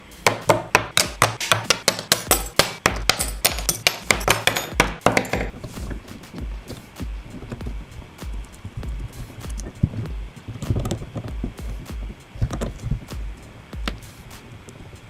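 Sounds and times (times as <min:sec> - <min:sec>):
steady low beat: 0:00.0 - 0:15.0
metal pieces clicking and clinking: 0:01.0 - 0:05.5.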